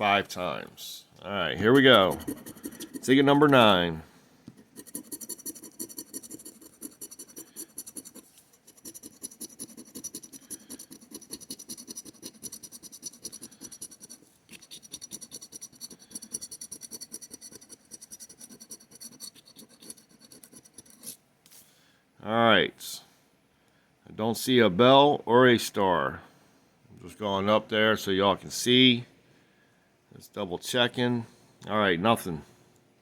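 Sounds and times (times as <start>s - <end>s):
scratching lottery ticket: 1.6s - 3.8s, 4.6s - 21.2s.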